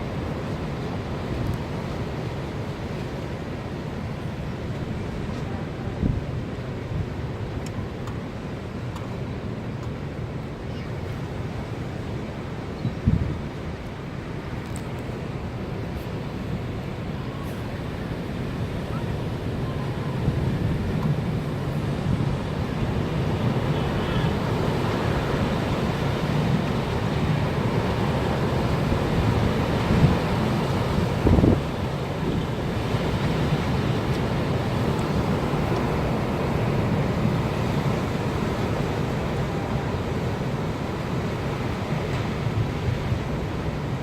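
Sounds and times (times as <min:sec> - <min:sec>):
wind buffeting the microphone: 0:04.3 - 0:07.7, 0:12.8 - 0:13.8, 0:14.4 - 0:44.0.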